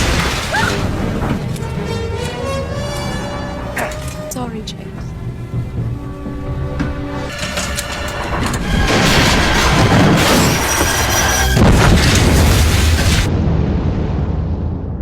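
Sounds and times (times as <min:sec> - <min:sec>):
crackling debris: 0:00.0 - 0:01.7, 0:07.2 - 0:14.6
low rumble: 0:04.5 - 0:15.0
loud explosion blast: 0:11.5 - 0:15.0.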